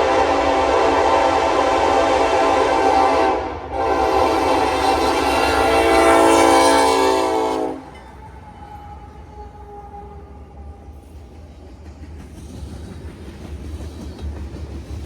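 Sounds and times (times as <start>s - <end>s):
locomotive air horn blasts: 0.0s - 8.0s
rumble of train rolling: 0.0s - 15.0s.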